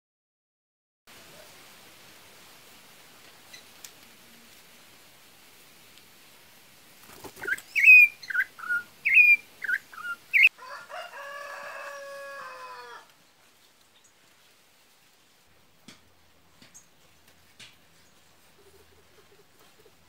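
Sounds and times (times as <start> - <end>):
bird calling sharp notes: 7.3 - 10.5
rooster crowing: 10.3 - 13.2.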